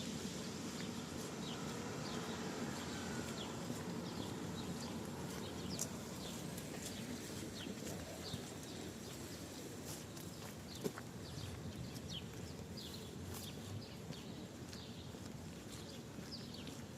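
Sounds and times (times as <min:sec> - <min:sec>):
footsteps walking: 0:00.2 - 0:16.9
small birds chirping: 0:00.7 - 0:16.9.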